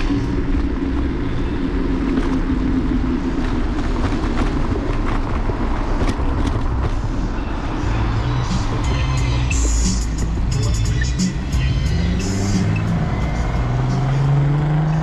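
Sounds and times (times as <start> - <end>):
city street traffic: 0.0 - 15.0
electric scooter ride rumble: 0.0 - 15.0.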